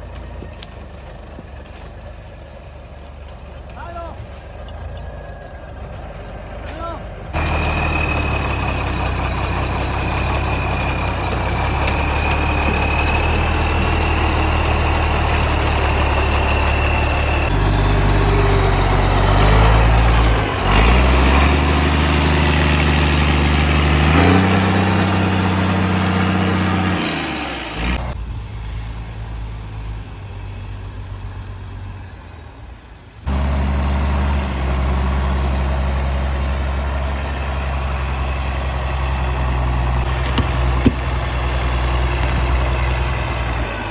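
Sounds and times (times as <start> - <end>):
truck engine revving: 4.6 - 28.2, 33.3 - 43.9.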